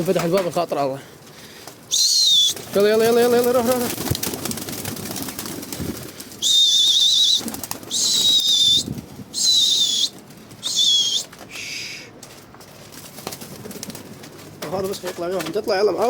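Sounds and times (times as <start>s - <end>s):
wings flapping: 1.6s - 16.0s
shrill warbling whistle blasts: 1.9s - 2.6s, 6.4s - 12.0s.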